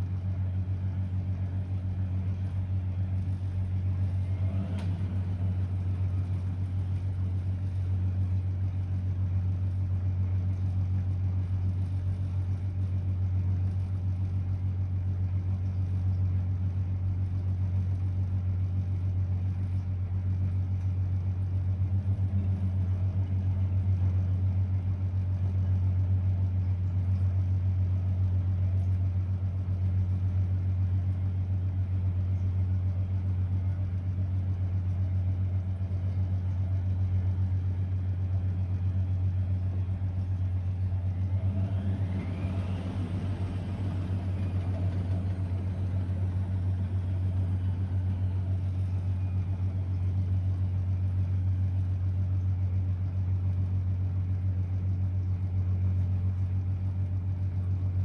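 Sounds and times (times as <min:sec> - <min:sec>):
washing machine humming: 0:00.0 - 0:09.3, 0:32.9 - 0:51.4
motor whine and rumble: 0:00.0 - 0:58.0.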